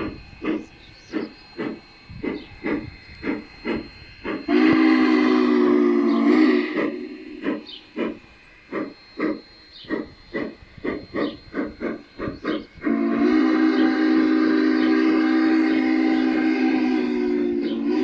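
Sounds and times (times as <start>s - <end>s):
steam locomotive exhaust chuffs: 0.0s - 18.0s
steam whistle chord: 0.0s - 18.0s.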